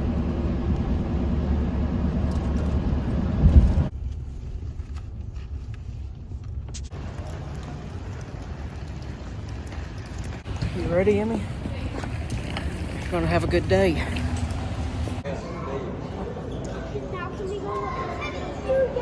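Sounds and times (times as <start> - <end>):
car rumble: 0.0 - 15.2
road noise: 0.0 - 19.0.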